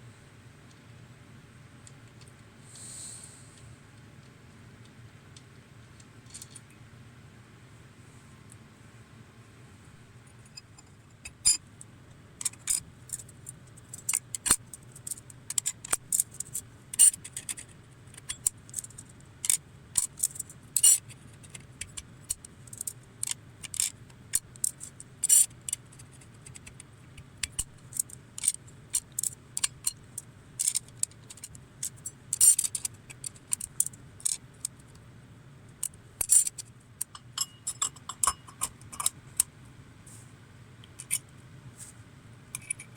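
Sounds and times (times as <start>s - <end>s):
metallic clinks of tools: 37.1s - 39.1s.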